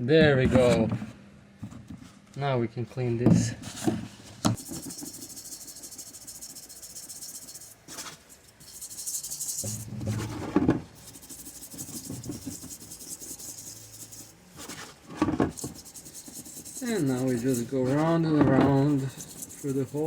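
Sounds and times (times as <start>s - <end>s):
brush scrubbing metal: 4.6s - 20.0s.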